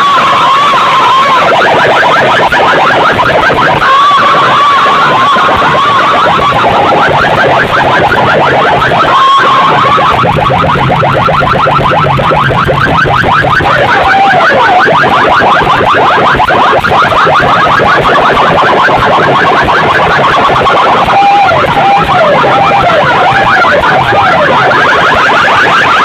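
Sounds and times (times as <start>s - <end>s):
loud electronic music over loudspeakers: 0.0s - 26.0s.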